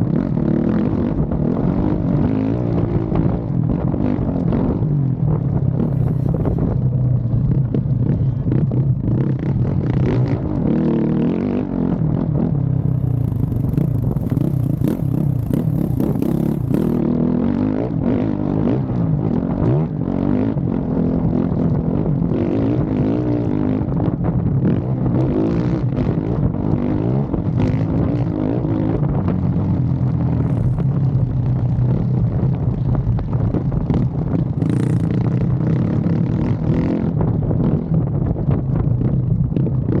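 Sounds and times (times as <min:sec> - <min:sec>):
motocross bike engine revving: 0:05.8 - 0:06.6, 0:12.8 - 0:18.5, 0:30.4 - 0:30.8, 0:34.5 - 0:37.2.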